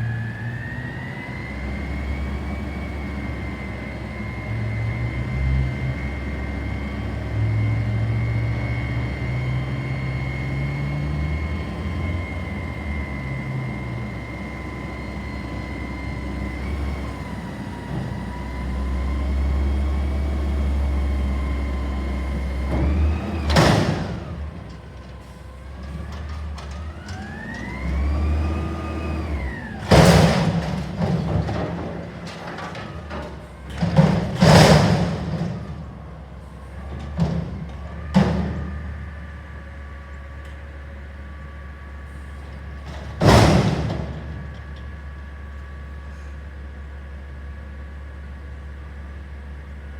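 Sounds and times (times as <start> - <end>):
garbage truck engine revving: 0.1 - 25.2, 25.8 - 39.5
loud metal bangs: 43.2 - 44.5.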